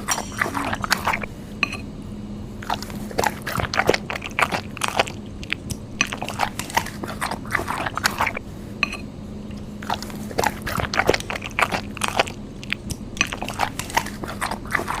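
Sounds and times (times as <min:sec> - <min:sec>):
faint steady hum: 0:00.0 - 0:15.0
chewing and slurping noodles: 0:02.6 - 0:08.4, 0:09.5 - 0:15.0.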